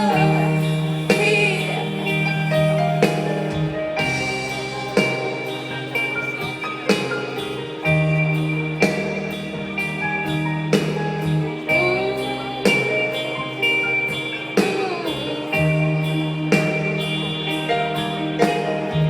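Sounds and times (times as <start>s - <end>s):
rock band playing instrumental: 0.0s - 19.0s.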